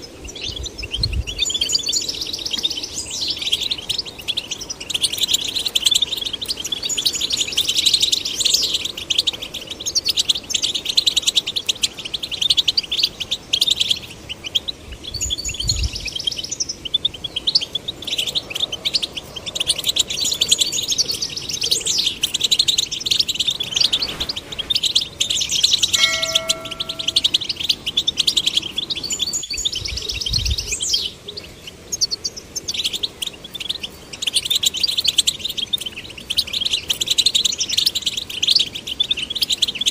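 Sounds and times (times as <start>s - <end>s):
finches twittering: 0.0s - 39.9s
brief steady tone: 26.0s - 27.4s.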